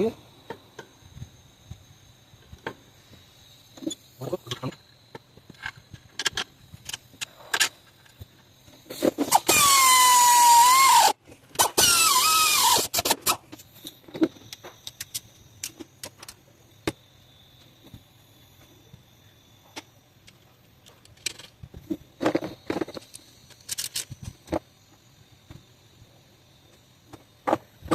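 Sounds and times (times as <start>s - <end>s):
tools and metal parts clicking: 5.5s - 8.2s, 11.5s - 16.4s, 20.2s - 21.6s, 22.2s - 24.6s
power tool squealing whine: 8.8s - 15.0s.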